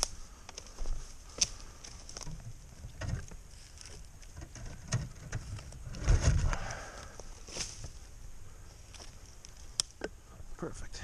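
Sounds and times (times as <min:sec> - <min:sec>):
twigs snapping: 0:00.0 - 0:02.4, 0:08.9 - 0:10.1
footsteps in undergrowth: 0:00.0 - 0:04.4, 0:05.4 - 0:09.9.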